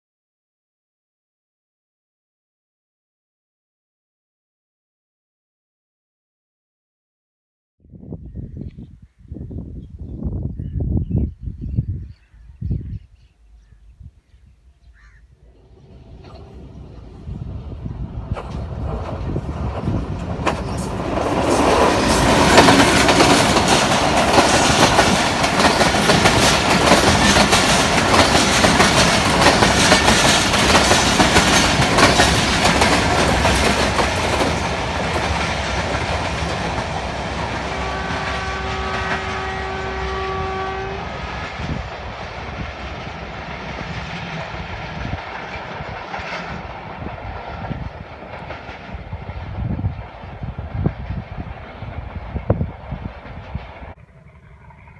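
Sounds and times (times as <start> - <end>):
train wheels clattering: 15.5 - 39.4, 41.4 - 54.0
train horn blast: 37.1 - 43.0.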